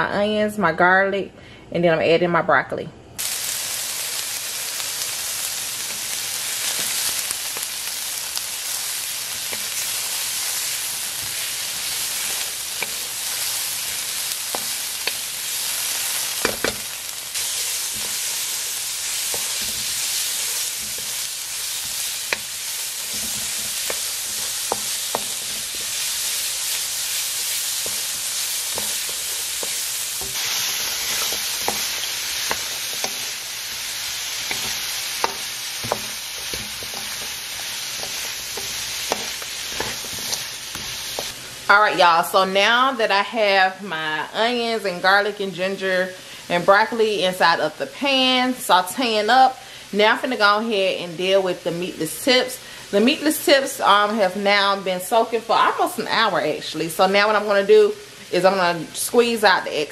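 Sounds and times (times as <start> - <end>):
vegetables sizzling in oil: 3.2 - 59.9
wooden spoon scraping a wok: 8.7 - 41.4.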